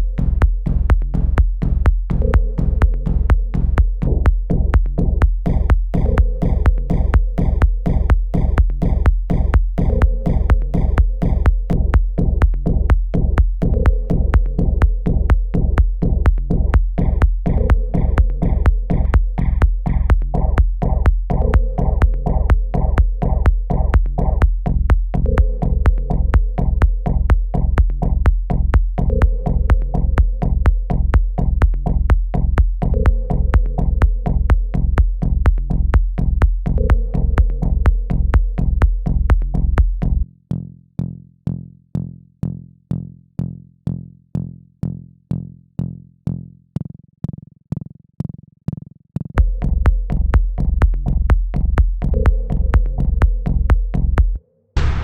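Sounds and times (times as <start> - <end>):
drum machine kick: 0.0 - 40.2, 49.4 - 55.0
synth phrase: 54.8 - 55.0.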